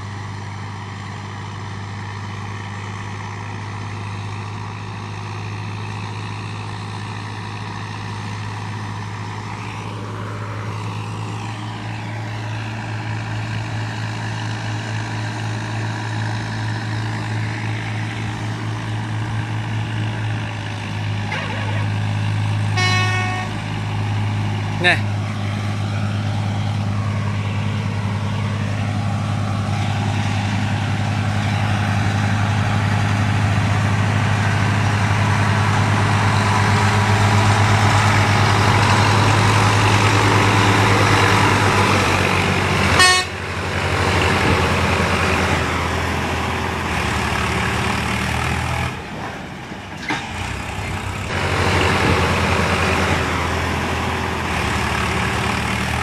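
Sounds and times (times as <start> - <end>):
tractor diesel engine under load: 0.0 - 56.0
horn toot: 22.7 - 23.7, 42.9 - 43.4.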